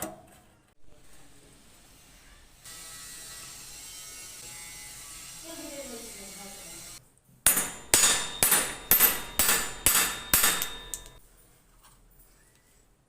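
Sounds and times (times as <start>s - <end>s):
hammer striking metal: 7.5s - 11.2s.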